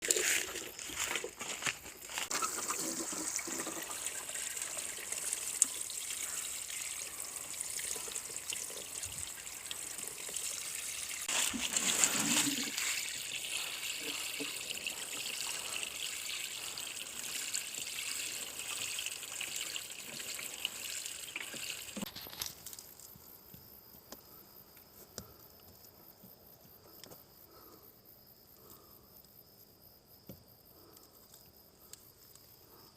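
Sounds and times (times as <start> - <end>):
crickets chirping: 0.1 - 32.9
water trickling onto engine: 2.7 - 22.8.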